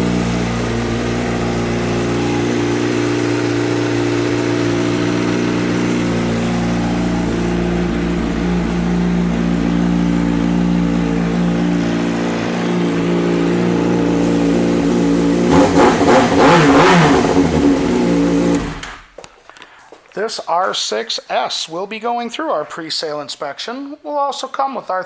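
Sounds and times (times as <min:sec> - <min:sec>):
motorcycle engine idling and revving: 0:00.0 - 0:19.1.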